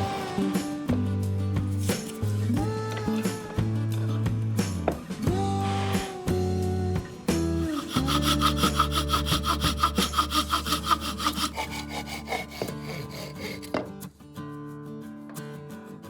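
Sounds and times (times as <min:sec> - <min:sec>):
fast rasping strokes: 0:07.6 - 0:13.8.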